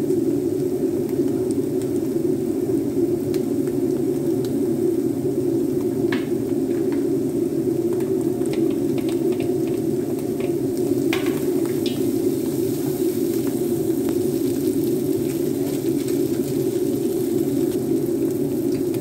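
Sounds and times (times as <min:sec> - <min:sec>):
steady low hum: 0:04.6 - 0:19.0
vegetables sizzling in a wok: 0:05.6 - 0:19.0
wooden spatula scraping and tapping: 0:08.5 - 0:12.2.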